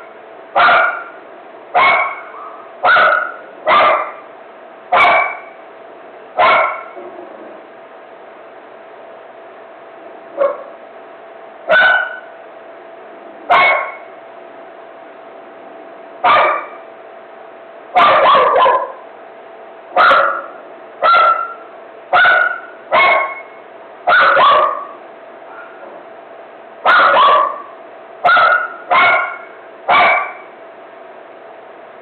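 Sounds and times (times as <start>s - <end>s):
faint steady hum: 0.0s - 32.0s
dog barking: 0.6s - 1.2s, 1.8s - 4.3s, 4.9s - 5.6s, 6.4s - 7.0s, 10.4s - 10.8s, 11.7s - 12.3s, 13.5s - 14.1s, 16.2s - 16.8s, 18.0s - 19.0s, 20.0s - 25.9s, 26.8s - 30.5s.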